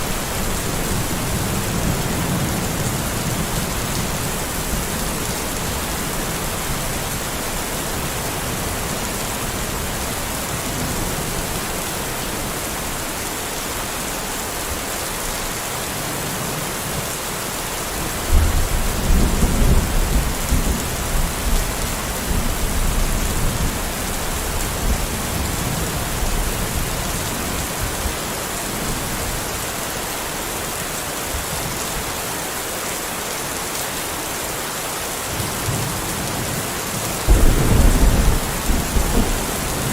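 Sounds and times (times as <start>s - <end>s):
heavy rain falling: 0.0s - 39.9s
thunder rumbling: 37.3s - 39.9s.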